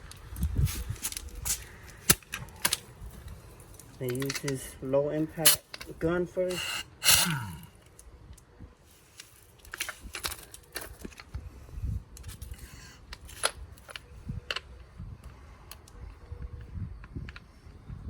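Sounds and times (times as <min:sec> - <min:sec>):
metal tools clicking and knocking: 0:03.8 - 0:04.7.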